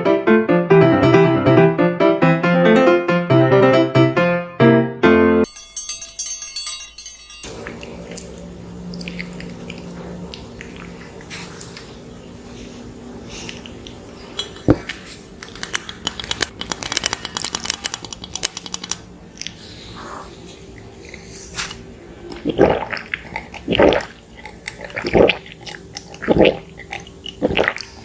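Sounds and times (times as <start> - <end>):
wet clicks of eating: 7.5 - 12.0, 13.4 - 19.6, 20.7 - 28.0
chewing sounds: 7.5 - 28.0.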